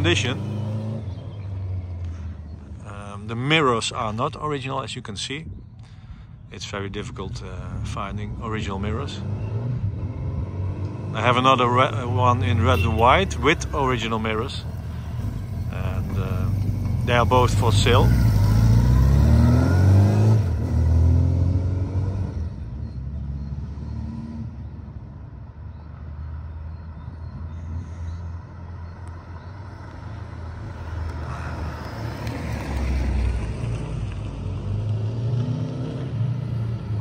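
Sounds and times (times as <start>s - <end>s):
motorcycle engine revving: 0.0s - 3.0s, 8.6s - 24.7s.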